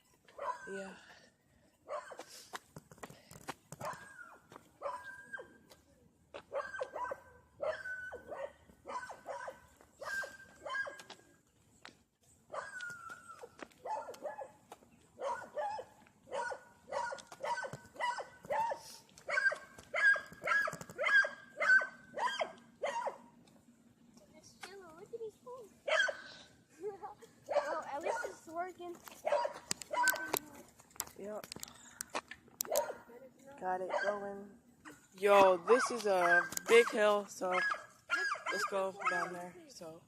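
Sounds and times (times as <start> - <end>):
dogs barking: 0.4 - 0.8, 1.9 - 2.3, 3.8 - 5.5, 6.5 - 11.2, 12.5 - 14.6, 15.2 - 23.3, 25.8 - 26.3, 27.5 - 28.4, 29.2 - 30.4, 32.6 - 33.1, 33.8 - 34.3, 35.6 - 39.4.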